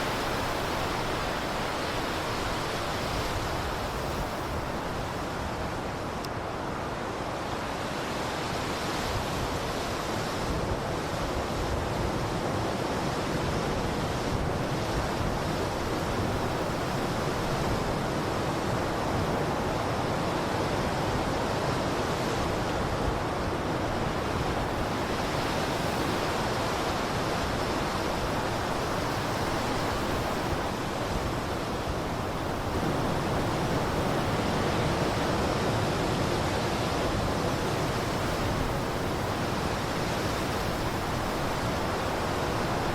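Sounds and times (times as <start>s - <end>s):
blizzard wind hissing: 22.3s - 42.9s.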